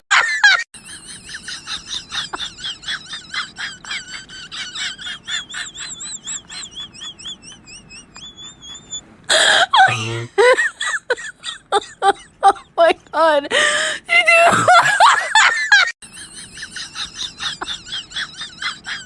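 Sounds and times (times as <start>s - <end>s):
bird chirping rapidly: 5.8s - 9.0s.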